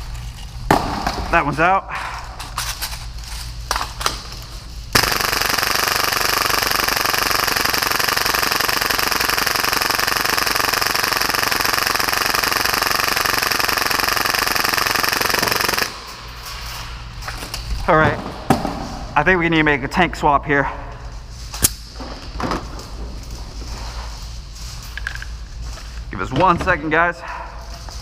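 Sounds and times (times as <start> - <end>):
airsoft pistol rapid firing: 4.9 - 16.0.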